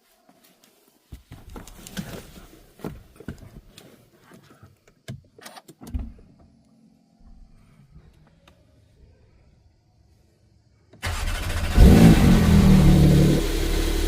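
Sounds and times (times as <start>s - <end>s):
faint low hum: 5.8s - 11.0s.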